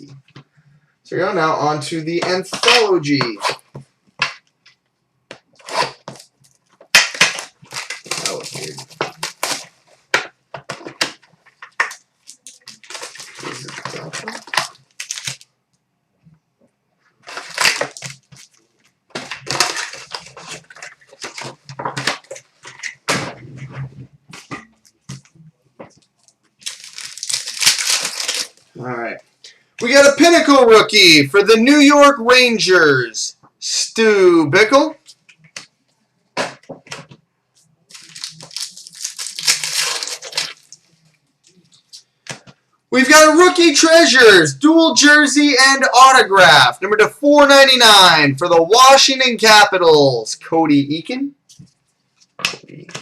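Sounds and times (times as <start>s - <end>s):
foil wrappers tearing and crinkling: 5.6s - 9.9s, 10.8s - 15.5s, 17.2s - 23.1s, 26.6s - 28.7s, 37.9s - 41.9s.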